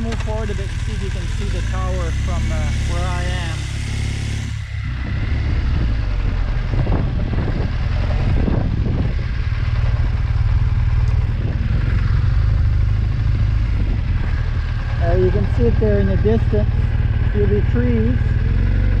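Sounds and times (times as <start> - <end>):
motorcycle engine running: 0.0 - 19.0
wind rumble on microphone: 4.4 - 19.0.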